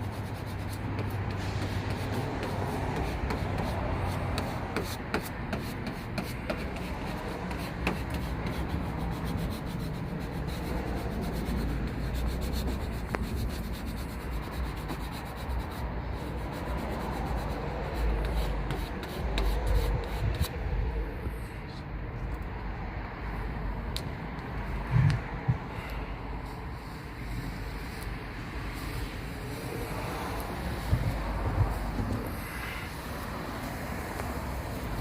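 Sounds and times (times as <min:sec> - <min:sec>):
rubbing and scraping with clicks: 0:00.0 - 0:20.6.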